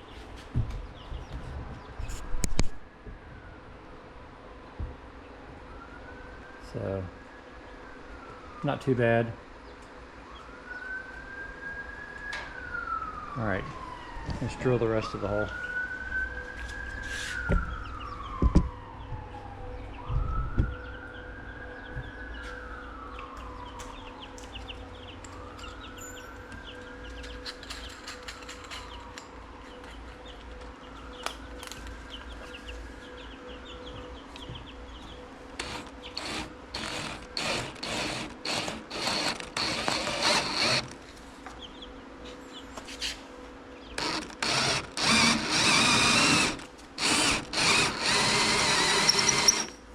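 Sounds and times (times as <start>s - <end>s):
distant siren wailing: 0.2s - 49.9s
power drill boring wood: 35.6s - 41.0s, 44.0s - 49.8s.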